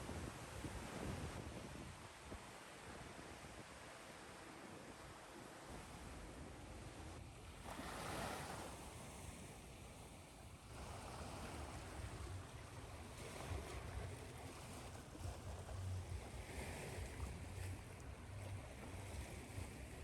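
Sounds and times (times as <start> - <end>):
ocean waves washing in: 7.6 - 20.0.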